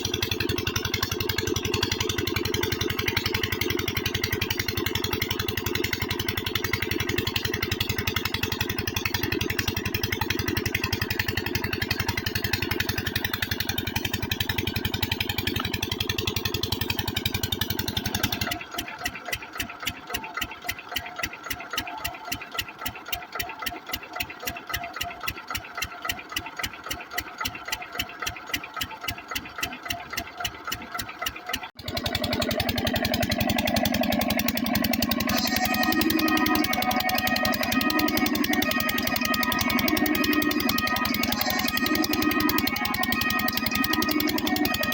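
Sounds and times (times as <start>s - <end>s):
diesel pump engine thumping: 0.0s - 44.9s.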